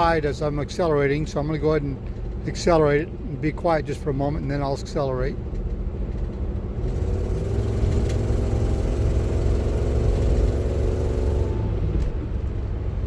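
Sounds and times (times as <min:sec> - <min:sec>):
engine accelerating: 0:06.7 - 0:13.0.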